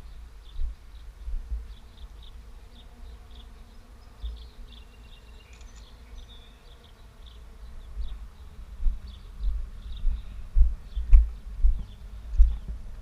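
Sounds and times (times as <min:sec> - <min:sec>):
wind buffeting microphone: 0:00.0 - 0:01.8, 0:07.8 - 0:13.0.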